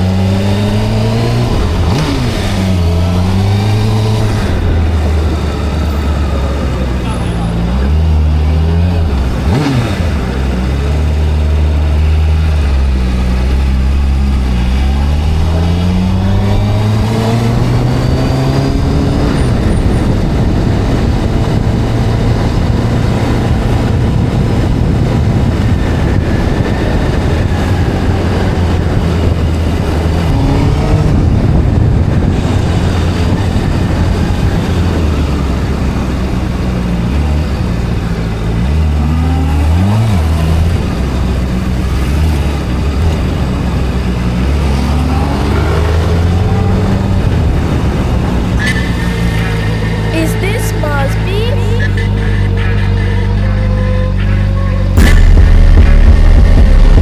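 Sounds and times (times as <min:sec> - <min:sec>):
motorcycle engine accelerating: 0:00.0 - 0:57.0
rushing wind noise: 0:12.2 - 0:38.6, 0:39.7 - 0:50.2.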